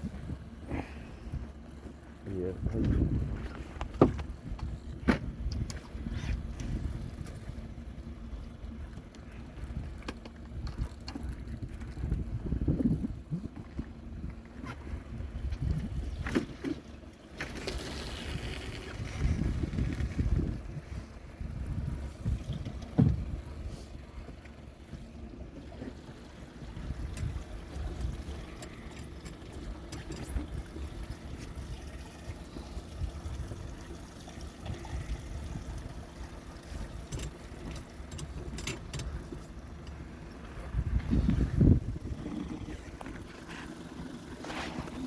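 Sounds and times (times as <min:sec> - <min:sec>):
boat engine rumble: 0:00.0 - 0:45.0
wind on microphone: 0:02.4 - 0:07.6, 0:10.6 - 0:16.4, 0:18.1 - 0:23.7, 0:40.6 - 0:43.6.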